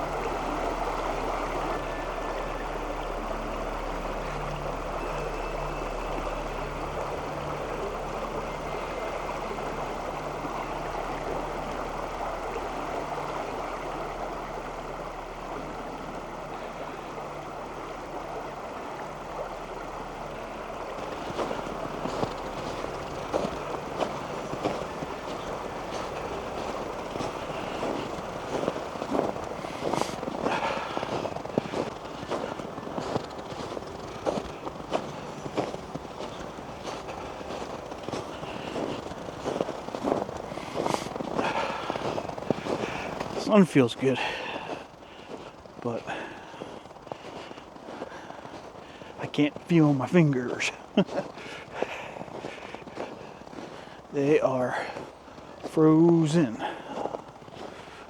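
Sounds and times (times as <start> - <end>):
creek rushing: 0.0 - 58.0
footsteps on a trail: 18.3 - 58.0.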